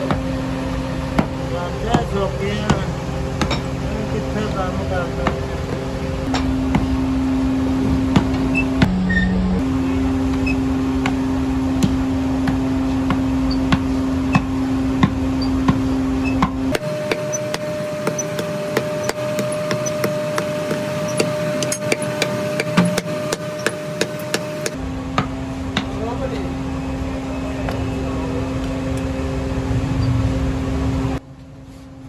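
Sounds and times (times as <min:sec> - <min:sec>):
hammer knocking on metal: 0:00.0 - 0:07.2, 0:07.8 - 0:08.9, 0:09.6 - 0:26.0
machine hum: 0:00.0 - 0:31.3.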